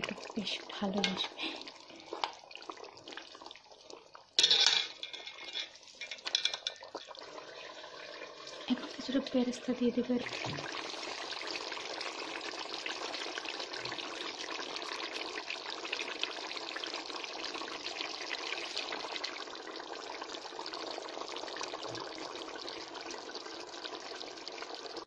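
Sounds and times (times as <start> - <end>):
curry sizzling in a pan: 0.0 - 25.0.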